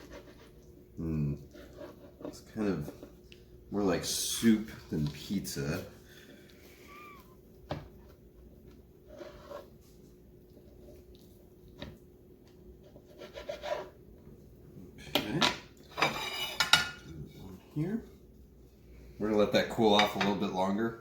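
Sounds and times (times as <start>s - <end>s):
knife sawing through pizza: 1.5s - 3.0s, 13.0s - 14.0s.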